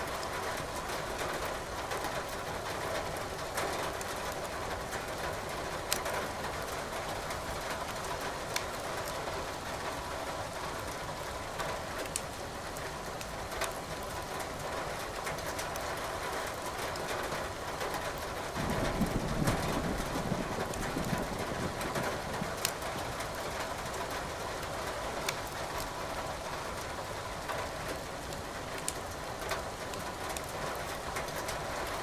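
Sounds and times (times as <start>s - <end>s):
wood fire crackling: 20.6s - 26.0s, 28.3s - 31.0s.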